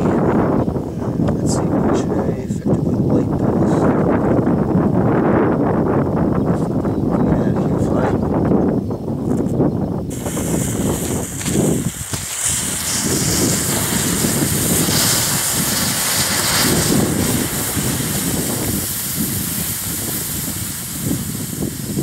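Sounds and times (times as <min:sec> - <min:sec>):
wind buffeting microphone: 0:00.0 - 0:22.0
high hiss: 0:10.1 - 0:22.0.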